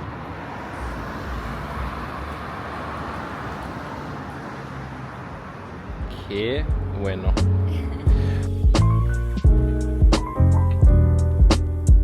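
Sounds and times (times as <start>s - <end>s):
passing vehicles hiss: 0.0s - 10.4s
vehicle engine rumble: 0.0s - 11.9s.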